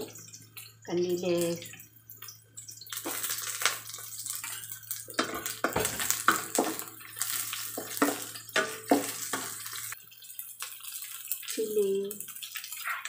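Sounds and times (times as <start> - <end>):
fish sizzling in hot oil: 0.0 - 13.0
wooden spatula scraping a wok: 5.1 - 10.0.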